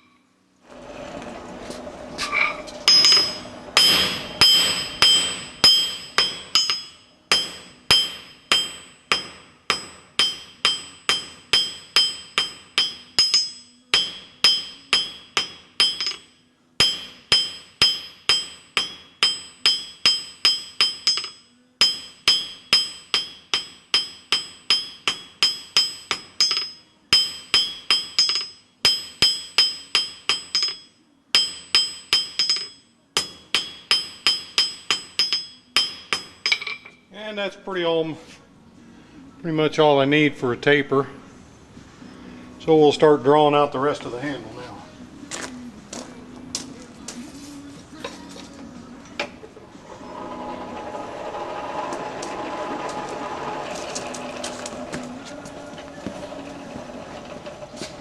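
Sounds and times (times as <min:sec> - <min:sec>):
hammer striking steel on anvil: 0:02.4 - 0:37.0.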